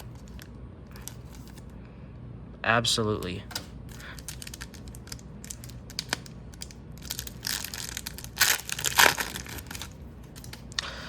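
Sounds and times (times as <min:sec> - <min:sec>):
wrapper crinkling: 0:00.0 - 0:01.6, 0:03.8 - 0:10.9.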